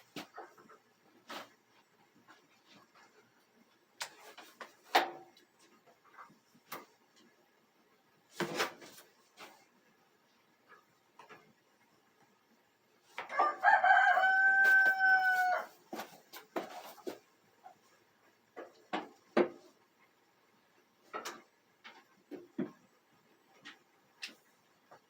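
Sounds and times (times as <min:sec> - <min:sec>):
rooster crowing: 0:13.3 - 0:15.8.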